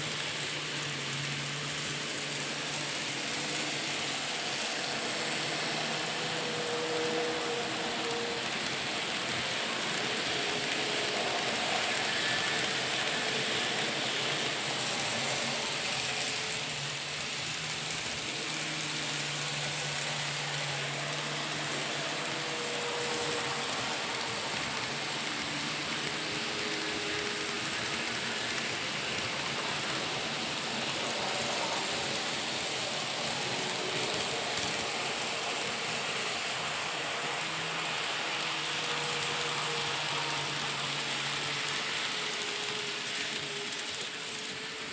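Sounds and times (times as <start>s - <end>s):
electric train running: 0.0s - 44.9s.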